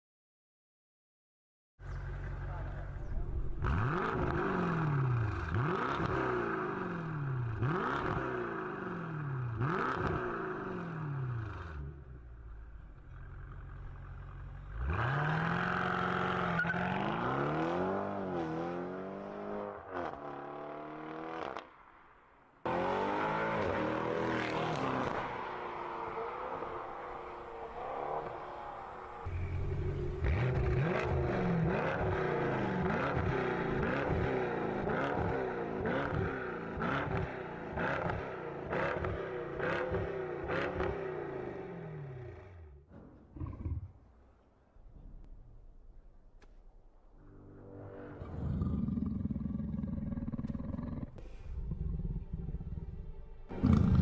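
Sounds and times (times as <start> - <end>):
car engine revving: 2.0 - 21.7, 22.7 - 42.8, 51.2 - 54.0.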